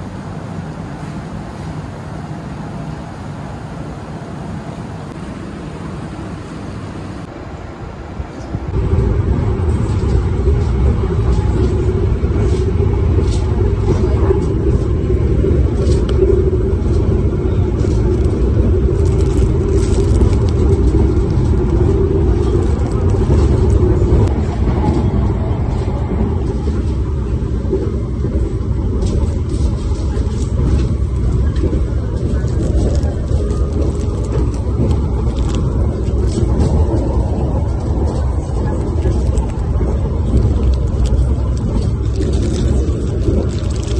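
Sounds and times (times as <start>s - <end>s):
train rumble inside carriage: 0.0s - 43.9s
cardboard box and wrappers crinkling: 18.9s - 21.8s, 22.4s - 23.8s, 32.4s - 36.4s, 39.0s - 43.9s.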